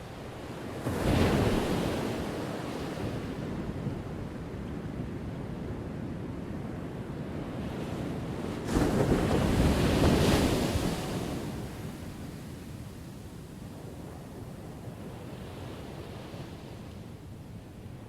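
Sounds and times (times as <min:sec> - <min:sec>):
surf washing on shore: 0:08.2 - 0:16.8.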